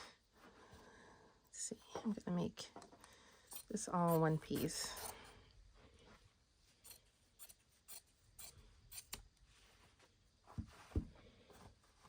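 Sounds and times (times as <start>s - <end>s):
soft thumps: 10.5s - 11.2s.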